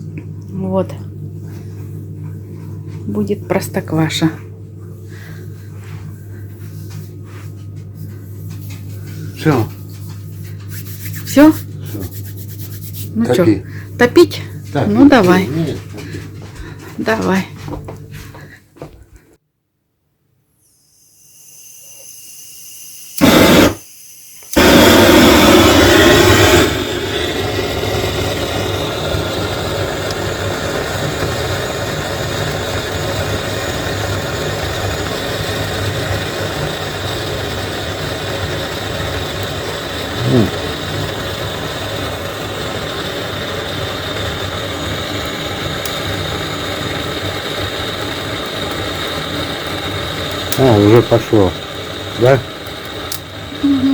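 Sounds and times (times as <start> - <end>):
fire ignition burst: 21.4 - 53.9
fire rushing: 23.2 - 23.8, 24.5 - 53.9.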